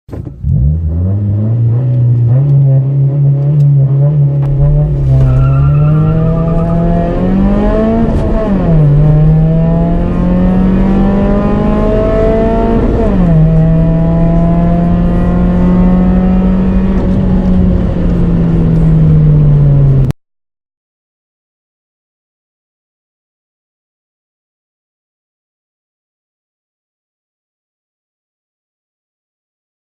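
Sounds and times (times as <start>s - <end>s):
car engine accelerating: 0.1s - 20.1s.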